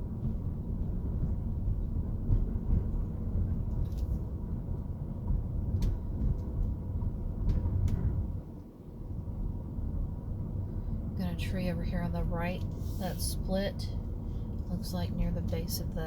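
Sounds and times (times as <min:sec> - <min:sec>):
car road and engine rumble: 0:00.0 - 0:16.0
light clicks and rattles: 0:03.6 - 0:04.3.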